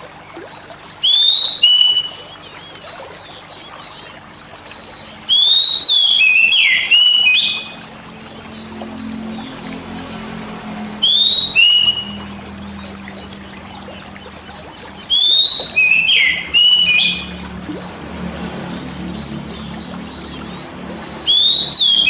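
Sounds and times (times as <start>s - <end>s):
bird whistled song: 0.8s - 3.9s, 4.8s - 8.0s, 11.0s - 13.8s, 14.4s - 17.4s, 21.1s - 22.0s
steady low hum: 7.6s - 21.3s.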